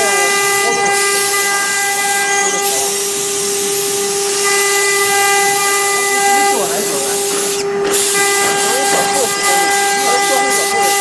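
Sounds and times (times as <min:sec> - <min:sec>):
router spindle whine: 0:00.0 - 0:11.0.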